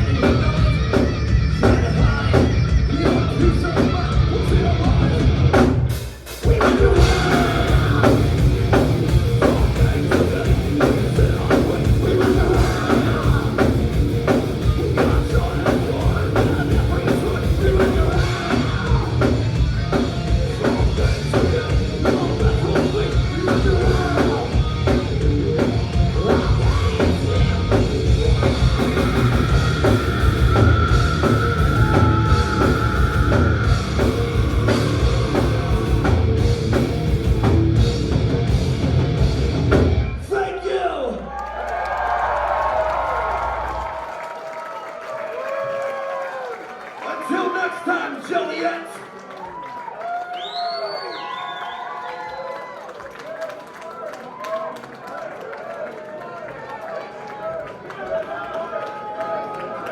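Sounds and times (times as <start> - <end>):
thrash metal band playing live: 0.0 - 40.4.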